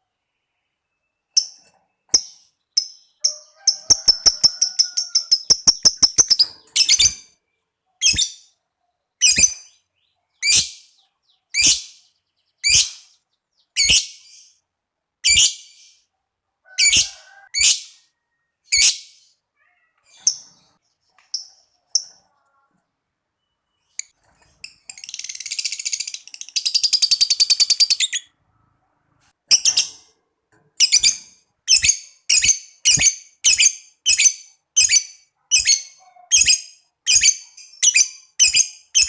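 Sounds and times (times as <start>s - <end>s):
soft bird chirps: 0.0s - 14.7s, 17.1s - 30.2s
lovebird chattering trill: 2.2s - 7.3s.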